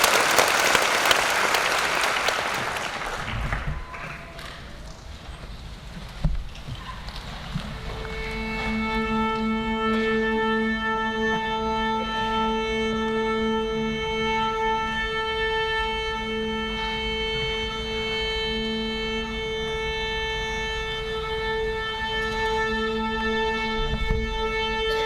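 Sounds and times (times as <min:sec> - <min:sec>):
string orchestra bowed notes: 0:07.7 - 0:25.0.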